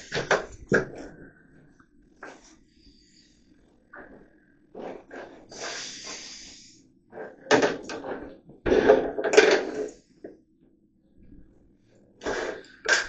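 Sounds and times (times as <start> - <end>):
scraping hiss: 4.8 - 7.7, 12.2 - 13.0.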